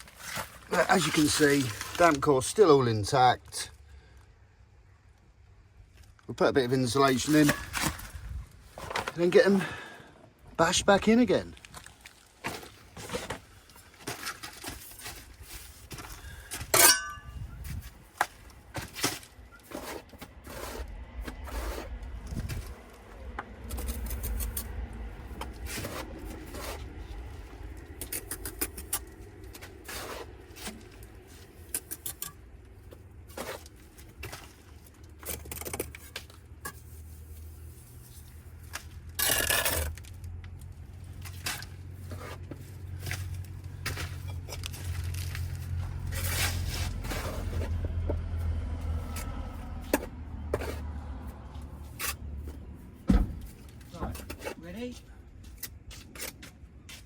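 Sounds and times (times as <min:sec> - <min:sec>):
clicks and scrapes of hand work: 0:11.6 - 0:24.7, 0:27.8 - 0:51.0, 0:55.4 - 0:57.0.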